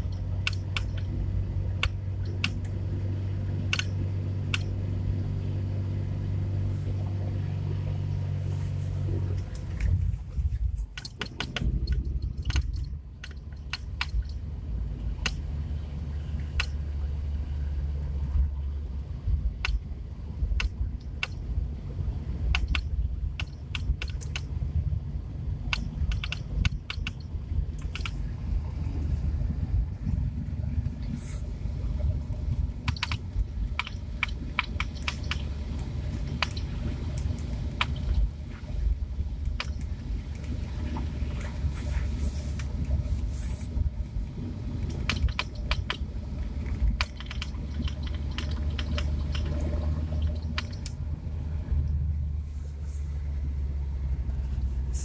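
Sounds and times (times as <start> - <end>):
road rumble: 0.0 - 55.0
car knocking and rattling: 9.0 - 15.6, 22.3 - 25.0, 25.6 - 52.4.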